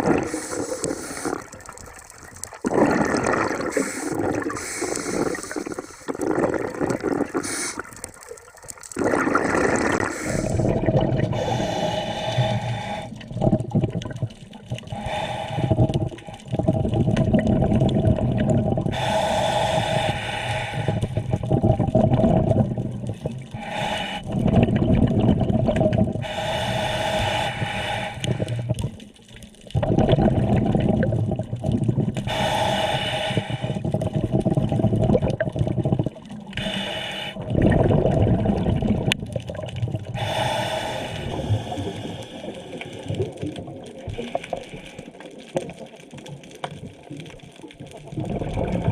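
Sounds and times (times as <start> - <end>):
gurgling exhaust bubbles: 0.0 - 11.5, 15.8 - 19.0, 21.2 - 23.5, 24.3 - 26.3, 29.7 - 32.2, 33.7 - 36.5, 37.4 - 40.2, 47.7 - 48.9
hissing regulator inhalations: 0.2 - 1.6, 3.6 - 6.2, 7.2 - 8.0, 9.8 - 10.7, 11.4 - 13.2, 14.9 - 16.4, 18.9 - 21.3, 23.6 - 24.3, 26.2 - 28.7, 32.3 - 33.9, 36.6 - 37.4, 40.2 - 43.3.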